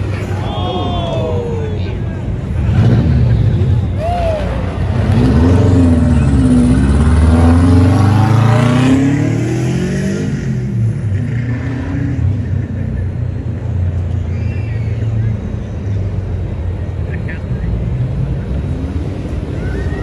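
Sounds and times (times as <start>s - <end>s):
car engine accelerating: 2.1s - 16.6s.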